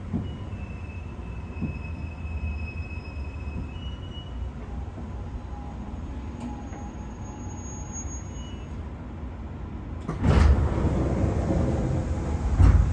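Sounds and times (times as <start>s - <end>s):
train interior rumble: 0.0s - 7.6s, 8.2s - 12.9s
sliding doors opening: 10.1s - 12.9s.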